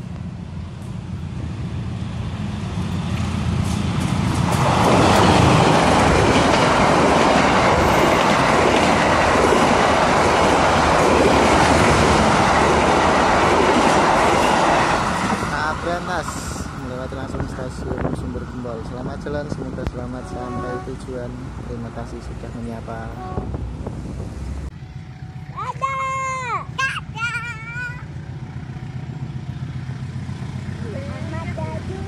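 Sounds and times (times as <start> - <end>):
train wheels rolling on track: 0.0 - 25.9
low train rumble: 0.0 - 32.0.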